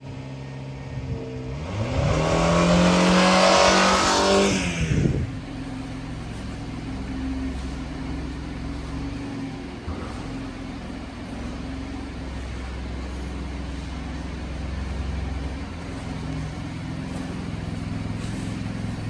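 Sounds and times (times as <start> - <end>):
engine idling and revving: 0.0 - 19.0.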